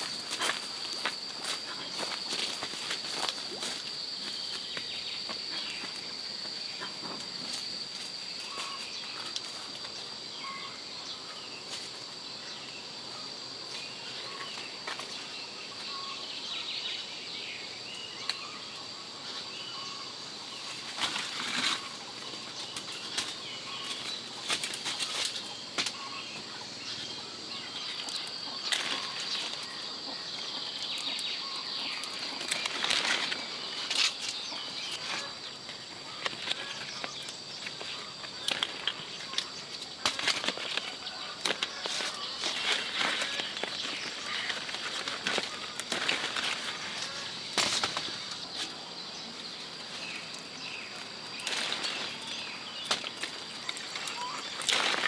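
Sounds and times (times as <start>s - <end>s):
leaves and twigs rustling snapping: 20.6s - 26.1s, 27.8s - 48.9s, 49.5s - 55.0s.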